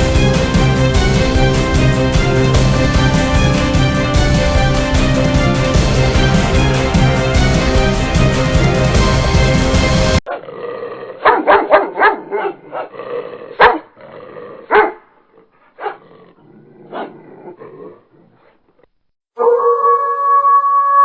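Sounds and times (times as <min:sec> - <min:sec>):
music: 0:00.0 - 0:10.2
dog barking: 0:11.2 - 0:12.9, 0:13.6 - 0:13.9, 0:14.7 - 0:15.1, 0:15.8 - 0:16.0, 0:16.9 - 0:17.2, 0:19.4 - 0:20.2.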